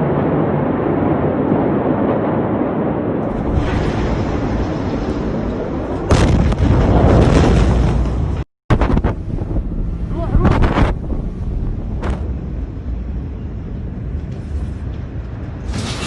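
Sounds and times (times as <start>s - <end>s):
heavy low rumble: 0.0s - 16.0s
wind buffeting on microphone: 8.2s - 15.8s.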